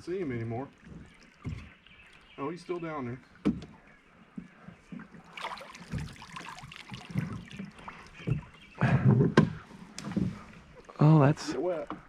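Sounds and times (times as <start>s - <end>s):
water splashing: 0.0s - 3.4s, 4.4s - 12.0s
knocking on canoe: 0.8s - 1.8s, 3.4s - 3.8s, 7.0s - 10.4s.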